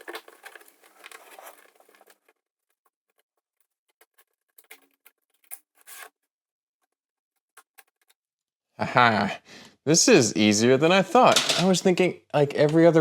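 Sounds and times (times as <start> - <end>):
plastic bricks clicking and clattering: 11.3 - 11.8.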